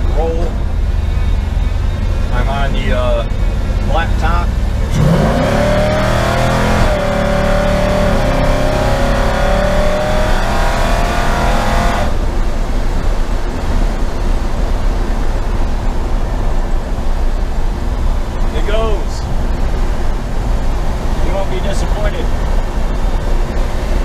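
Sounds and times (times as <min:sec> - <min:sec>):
pickup truck engine accelerating: 0:00.0 - 0:18.5
road rumble: 0:00.0 - 0:24.0.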